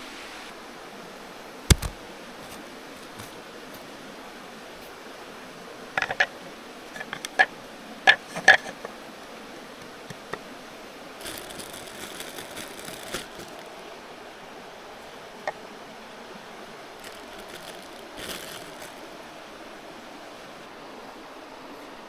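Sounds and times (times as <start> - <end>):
stream murmuring: 0.0 - 22.0
camping gear clicking and knocking: 1.7 - 3.4, 11.2 - 13.7, 17.0 - 19.2
gear rustling: 11.2 - 13.7, 16.9 - 19.3.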